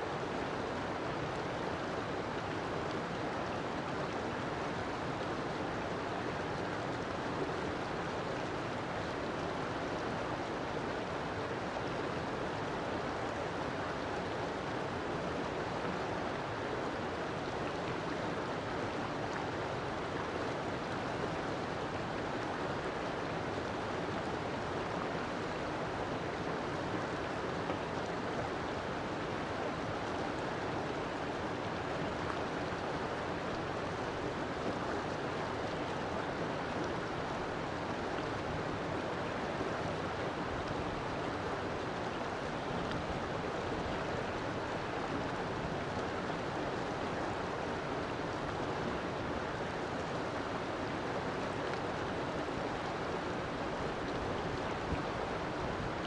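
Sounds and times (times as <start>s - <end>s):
river water flowing over rocks: 0.0s - 56.0s.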